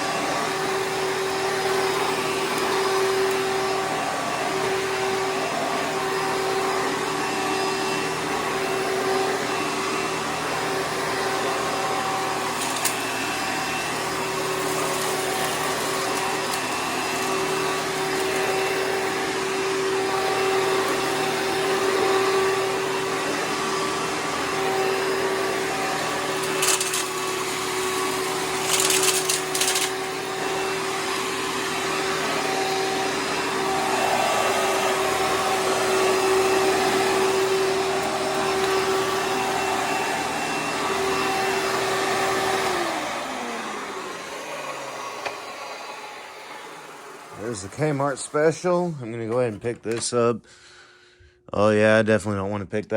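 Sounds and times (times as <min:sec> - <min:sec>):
upright vacuum cleaner running: 0:00.0 - 0:50.3
debris rattling in vacuum: 0:11.4 - 0:18.8, 0:24.6 - 0:30.4.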